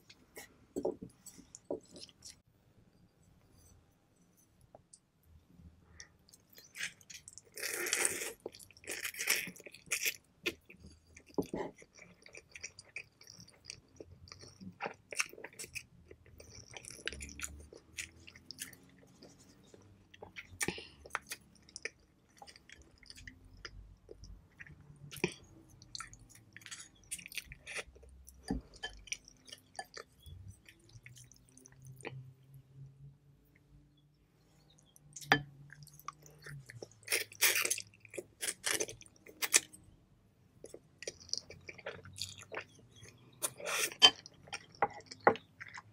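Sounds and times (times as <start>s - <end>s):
chewing noodles with wet clicks: 6.0s - 32.4s, 40.6s - 45.9s.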